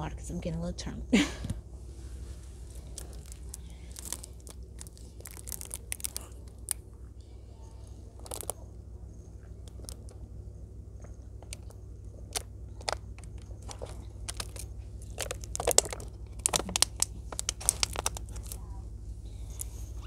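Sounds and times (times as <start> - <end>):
steady low hum: 0.0 - 20.0
plastic bottle crinkling: 2.4 - 7.0, 8.2 - 8.6, 9.5 - 10.2, 11.0 - 18.7.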